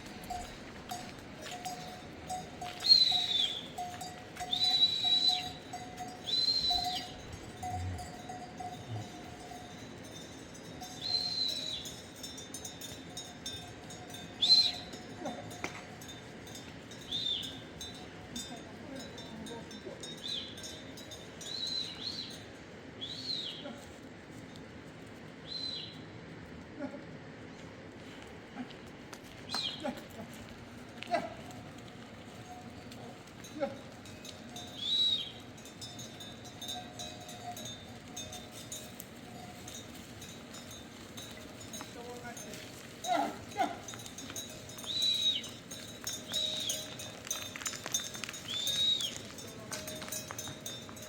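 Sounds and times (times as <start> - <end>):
high whistled notes: 2.8 - 3.8, 4.5 - 5.6, 6.2 - 7.1, 11.0 - 11.8, 34.8 - 35.4, 44.8 - 45.6, 48.4 - 49.3.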